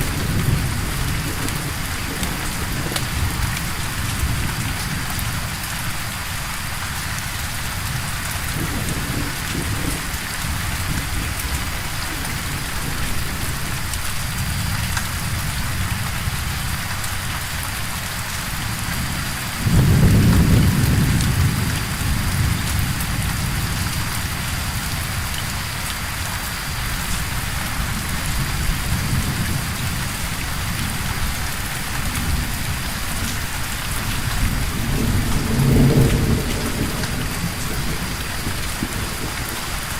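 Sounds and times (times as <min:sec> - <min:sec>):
loud thunderclap: 0:00.0 - 0:05.0, 0:19.6 - 0:23.8, 0:34.2 - 0:39.4
thunder rumbling: 0:00.0 - 0:06.0, 0:07.5 - 0:16.8, 0:18.7 - 0:25.2, 0:27.0 - 0:39.9
steady rain: 0:00.0 - 0:39.9.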